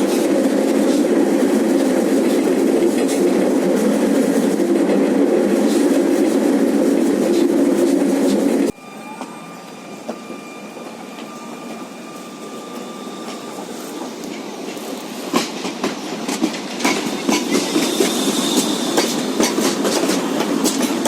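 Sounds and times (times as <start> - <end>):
tram rumbling on rails: 0.0 - 21.0
faint steady high tone: 8.7 - 14.2
wheels clacking over track: 13.3 - 21.0.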